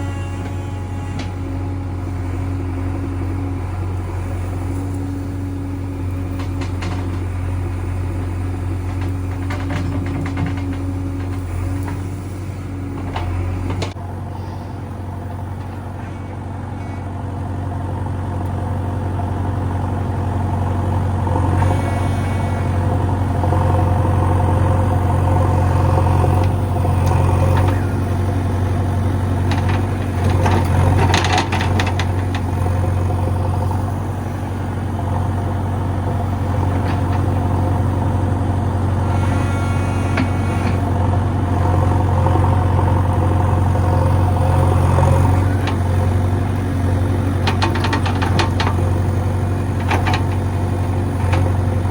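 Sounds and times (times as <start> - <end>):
backhoe diesel engine running: 0.0 - 51.9
clattering and knocking: 8.9 - 10.9.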